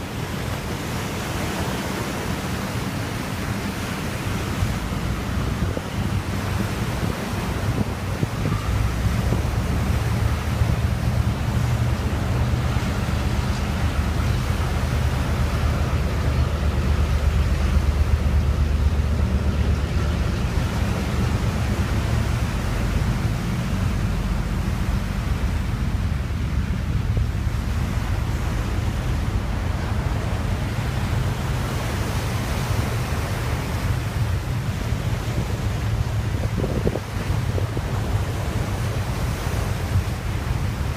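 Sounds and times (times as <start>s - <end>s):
wind rushing on microphone: 0.0s - 40.9s
diesel locomotive engines throbbing: 4.4s - 40.9s.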